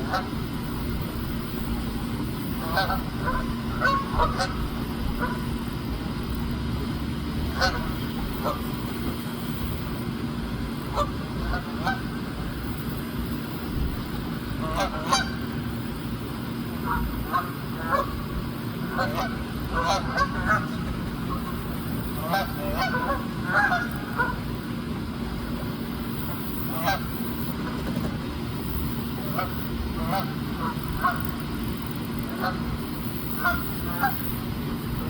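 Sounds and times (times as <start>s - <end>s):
geese honking: 0.0s - 0.4s, 2.6s - 5.4s, 7.4s - 8.7s, 10.9s - 12.2s, 14.6s - 15.4s, 16.8s - 18.2s, 18.9s - 24.4s, 26.7s - 27.1s, 29.2s - 31.3s, 32.3s - 32.6s, 33.3s - 34.2s
low background rumble: 0.0s - 35.0s.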